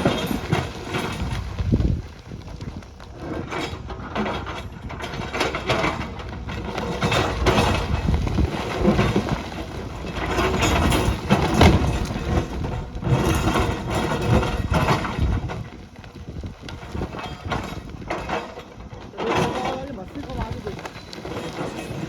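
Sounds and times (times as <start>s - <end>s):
heavy machinery engine running: 0.0s - 22.0s
knocks and scraping: 0.0s - 22.0s.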